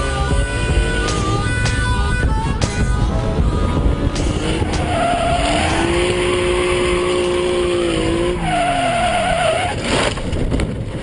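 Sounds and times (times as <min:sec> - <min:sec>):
engine revving hard: 0:03.8 - 0:08.9
tyres squealing: 0:04.6 - 0:09.8.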